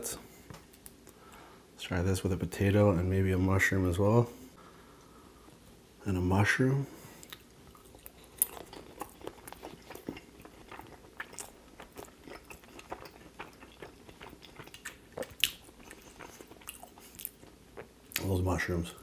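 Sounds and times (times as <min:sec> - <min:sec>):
person chewing food: 0:07.2 - 0:18.3.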